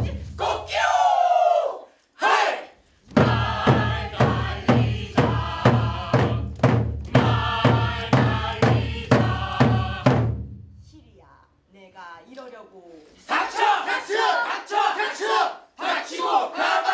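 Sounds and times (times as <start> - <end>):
drum beats: 0.0 - 0.7, 3.0 - 11.2
group chanting: 0.0 - 10.3, 13.2 - 16.9.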